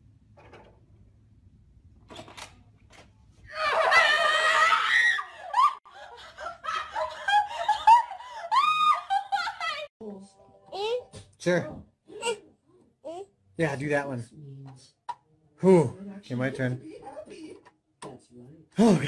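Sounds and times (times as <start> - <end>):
woman screaming: 3.5 - 5.8, 8.5 - 9.9
woman laughing: 5.4 - 9.9.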